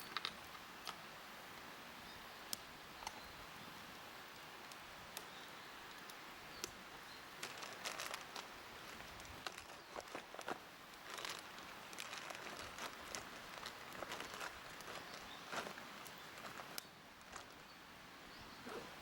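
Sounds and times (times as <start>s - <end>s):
faint hiss: 0.0s - 19.0s
sharp clicks and snaps: 5.9s - 6.8s.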